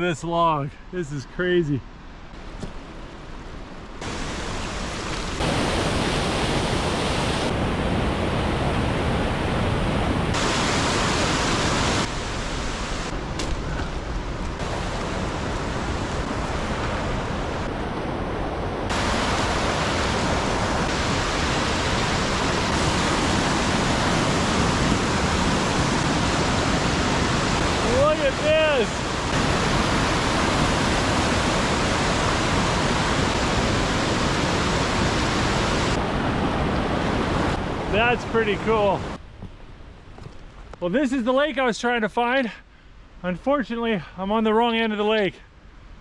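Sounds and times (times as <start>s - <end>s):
rushing water: 3.6s - 39.2s.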